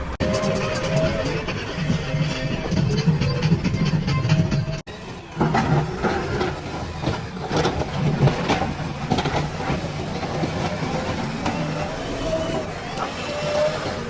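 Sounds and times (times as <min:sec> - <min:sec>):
diesel engine running: 0:00.0 - 0:14.0
irregular knocks and clatter: 0:05.4 - 0:12.0.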